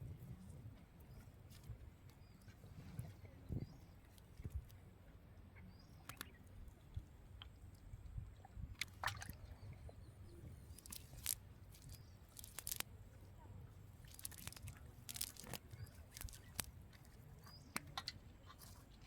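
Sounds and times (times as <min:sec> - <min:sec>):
water sloshing: 0:07.8 - 0:12.8
sharp clicks: 0:10.7 - 0:12.9, 0:14.1 - 0:16.7
handling noise: 0:14.1 - 0:16.8.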